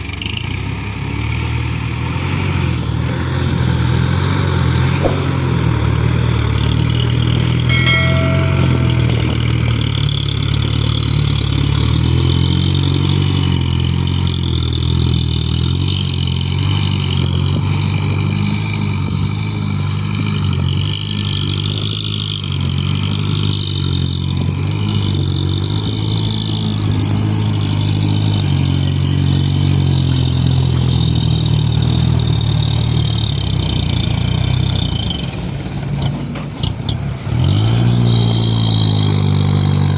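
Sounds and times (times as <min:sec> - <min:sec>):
short high note: 0:07.5 - 0:10.3.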